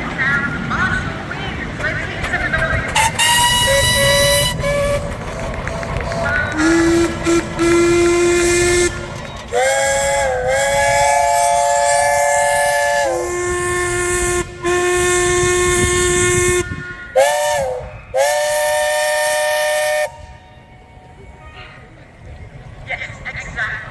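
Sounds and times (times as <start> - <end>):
chord steam whistle: 3.0 - 20.7
low single-note steam whistle: 3.0 - 20.8.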